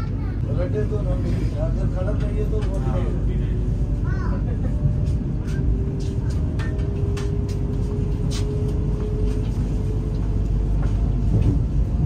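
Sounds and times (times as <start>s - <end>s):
train cabin rumble: 0.0s - 12.0s.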